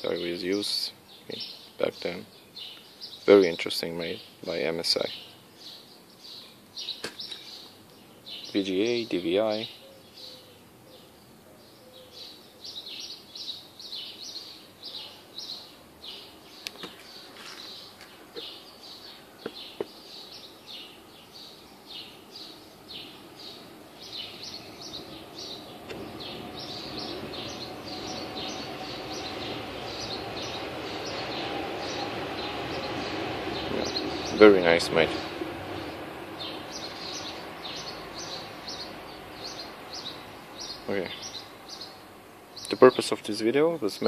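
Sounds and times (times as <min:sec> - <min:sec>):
birds chirping: 0:00.0 - 0:44.0
steady background noise: 0:00.0 - 0:44.0.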